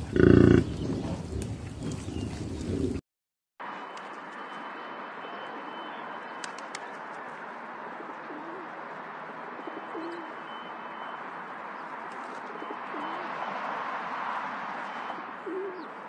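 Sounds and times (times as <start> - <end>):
pigeons cooing: 0.0 - 1.0, 8.0 - 8.8, 9.6 - 10.4, 12.4 - 13.4, 15.0 - 16.0
steady outdoor noise: 0.0 - 3.0, 3.6 - 16.0
sharp clicks: 6.4 - 7.0.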